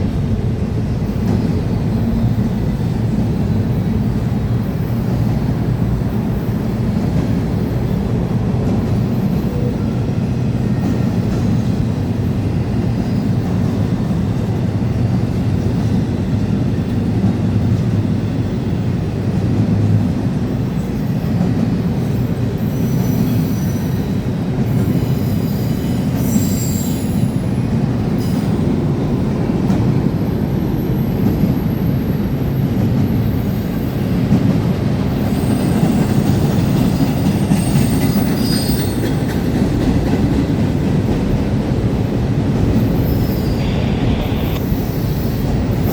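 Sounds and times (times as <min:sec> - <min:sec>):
train wheels rumbling on rail: 0:00.0 - 0:45.9
wheel squeal: 0:24.8 - 0:27.4, 0:35.2 - 0:39.4, 0:42.8 - 0:45.9.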